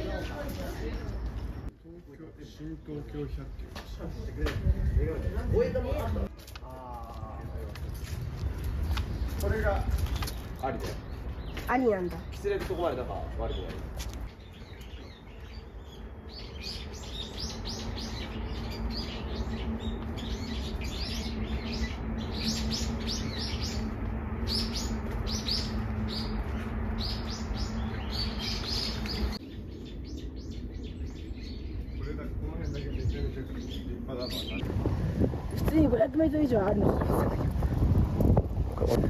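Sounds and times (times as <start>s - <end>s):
small birds chirping: 0.0s - 34.7s
low hum: 15.6s - 32.6s.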